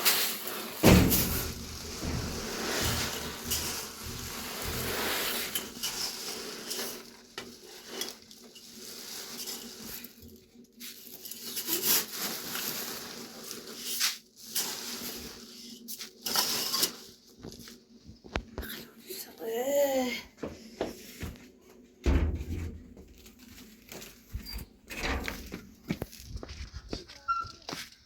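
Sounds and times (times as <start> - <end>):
scraping and rustling at beehive: 0.0 - 10.2.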